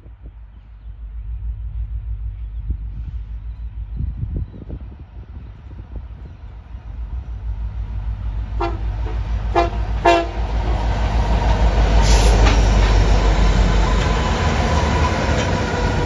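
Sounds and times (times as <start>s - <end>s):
locomotive engine rumble: 0.0s - 16.0s
wheels clattering on rail: 8.5s - 16.0s
locomotive horn taps: 8.6s - 10.4s.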